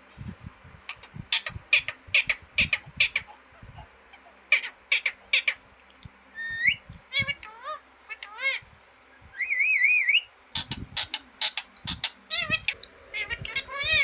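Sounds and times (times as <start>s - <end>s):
parrot squawking: 0.9s - 5.6s, 6.4s - 8.7s, 9.4s - 14.0s
parrot whistling: 9.3s - 10.3s.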